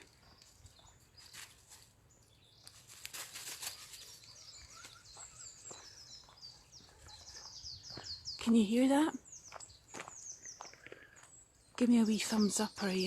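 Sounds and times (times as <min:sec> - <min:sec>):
songbirds singing: 0:00.0 - 0:13.0
rustling: 0:02.7 - 0:04.2.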